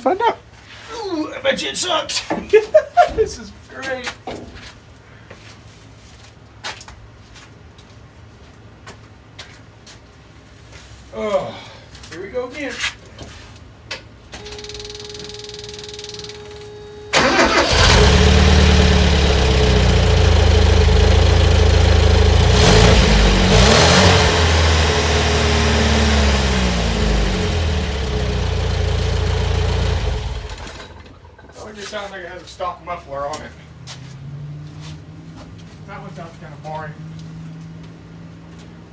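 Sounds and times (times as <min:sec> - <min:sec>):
car engine cranking and starting: 0:14.4 - 0:31.6
car engine idling and revving: 0:16.3 - 0:31.5, 0:33.3 - 0:38.9.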